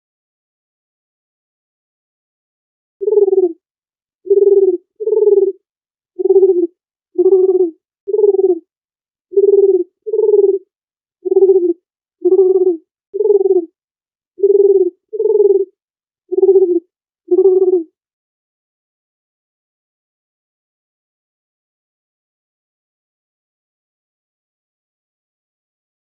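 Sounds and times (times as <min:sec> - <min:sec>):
dove cooing: 0:03.0 - 0:03.6, 0:04.3 - 0:05.6, 0:06.2 - 0:08.6, 0:09.4 - 0:13.7, 0:14.4 - 0:15.7, 0:16.3 - 0:17.9.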